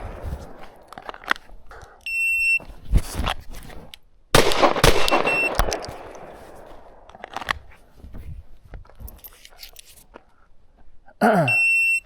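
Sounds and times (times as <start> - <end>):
pistol shots: 4.4 - 7.1
shot timer beep: 5.0 - 5.7.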